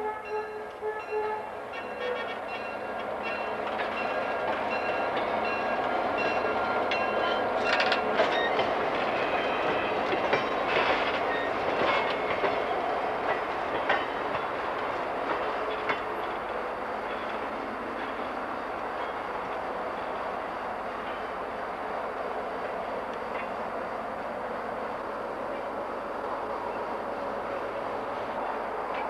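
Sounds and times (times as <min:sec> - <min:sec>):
train rolling rumble: 0:00.0 - 0:29.0
train wheels clicking over rail joints: 0:01.8 - 0:20.2, 0:25.4 - 0:29.0
high wheel squeaks: 0:06.3 - 0:12.1.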